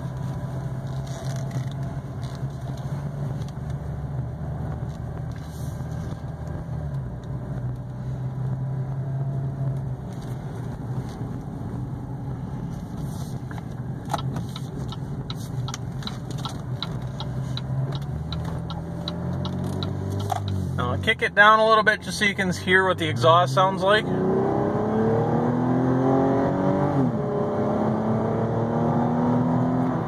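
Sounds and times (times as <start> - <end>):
car engine running: 0.0 - 24.2
road noise: 0.0 - 30.0
sharp clicks: 14.1 - 20.6.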